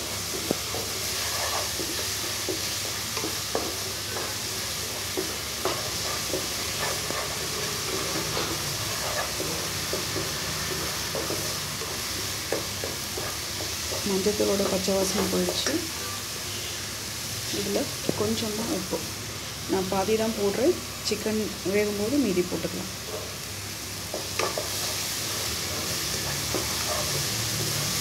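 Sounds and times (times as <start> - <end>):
paste sizzling in oil: 0.0 - 28.0
wooden spatula scraping pan: 0.1 - 15.8, 24.1 - 28.0.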